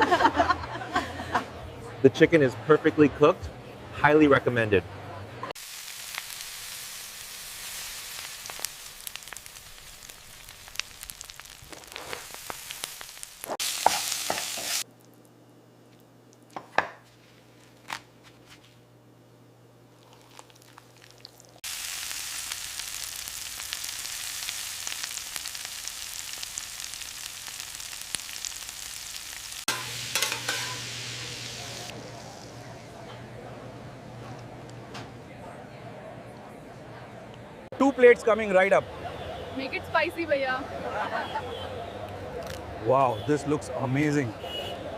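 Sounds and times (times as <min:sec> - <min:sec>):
food sizzling in hot oil: 0:05.6 - 0:14.9, 0:20.1 - 0:32.6.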